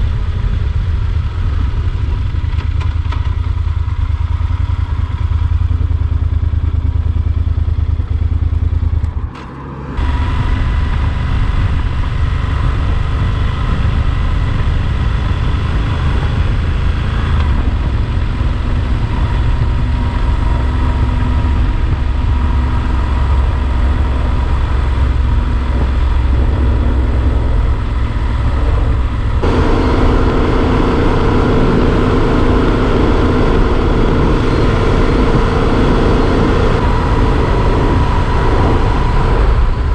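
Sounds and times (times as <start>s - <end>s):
motorcycle engine running: 0.0s - 39.9s
road noise: 0.0s - 39.9s.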